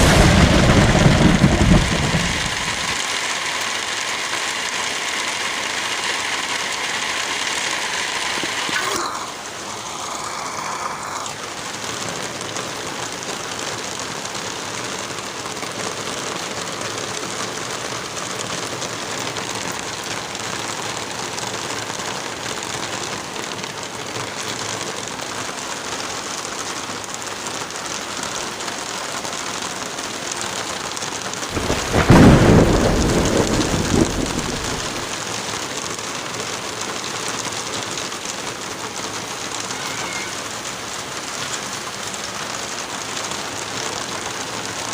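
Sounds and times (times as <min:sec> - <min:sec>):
thunderclap rumbling: 0:00.0 - 0:03.1, 0:31.5 - 0:35.2
heavy rain: 0:00.0 - 0:44.9.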